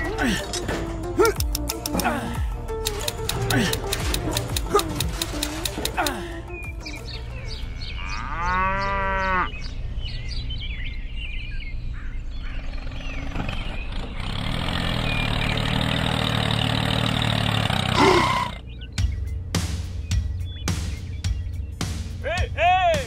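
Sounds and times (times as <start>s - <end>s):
birds chirping: 0.0s - 23.0s
small tractor engine running: 2.8s - 6.1s, 12.5s - 18.6s
cow mooing: 7.6s - 9.7s.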